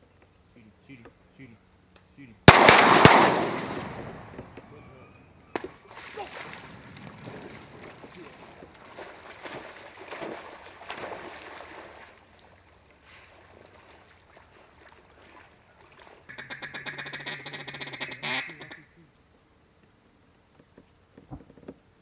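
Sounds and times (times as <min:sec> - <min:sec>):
duck quacking: 0:16.3 - 0:19.0.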